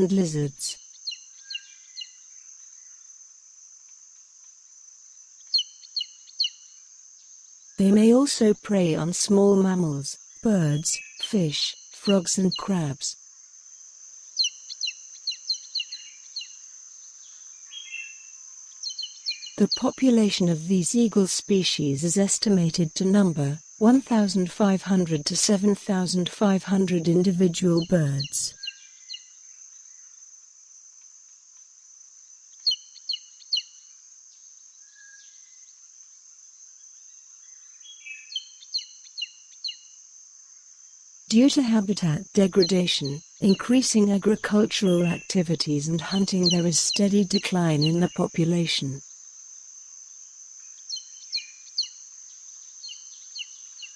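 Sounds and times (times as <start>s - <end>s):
bird chirping: 5.4s - 6.6s, 14.4s - 16.6s, 17.6s - 20.6s, 32.6s - 33.7s, 50.8s - 52.0s.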